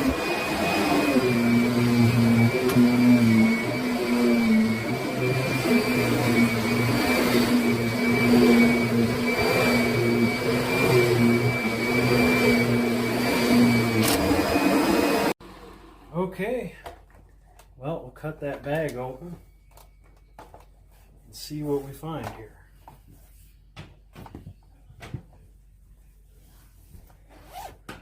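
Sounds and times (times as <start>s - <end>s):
upright vacuum running: 0.0s - 16.3s.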